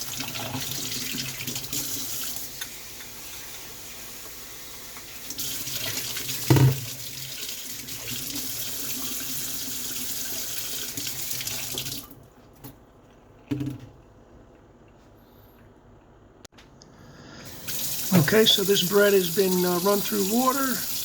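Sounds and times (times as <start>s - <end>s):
water running from tap: 0.0s - 12.1s, 17.4s - 21.0s.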